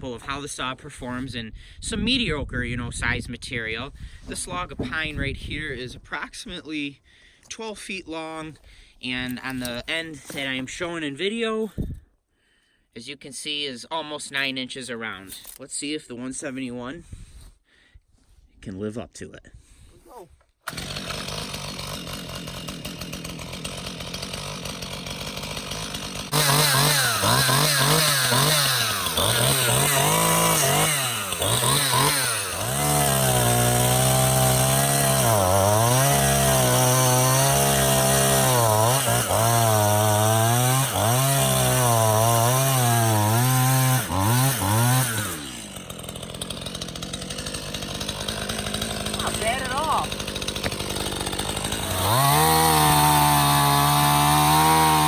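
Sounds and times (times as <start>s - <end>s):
chainsaw cutting through log: 20.6s - 55.0s
chainsaw idling and revving: 20.6s - 55.0s.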